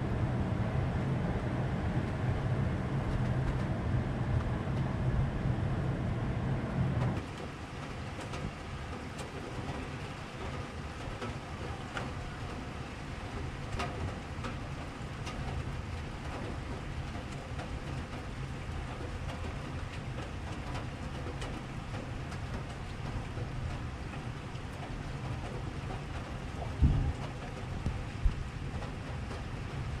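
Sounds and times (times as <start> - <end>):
raindrops ticking on surfaces: 0.3 - 4.9, 7.0 - 30.0
rain hissing: 7.2 - 30.0
low thunder rumble: 22.0 - 30.0.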